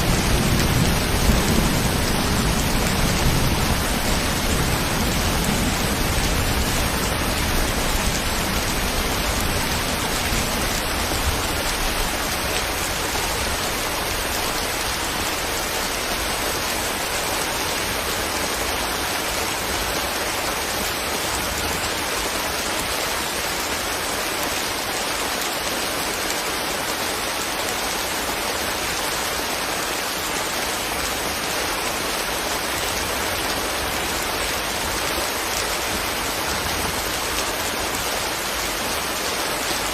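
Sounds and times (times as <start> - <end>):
rain hissing: 0.0 - 19.1.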